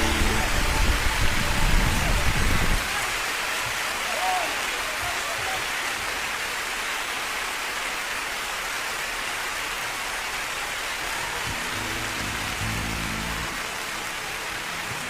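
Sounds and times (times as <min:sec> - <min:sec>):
low musical notes: 0:00.0 - 0:01.4, 0:11.4 - 0:14.2
rain hiss: 0:00.0 - 0:15.0.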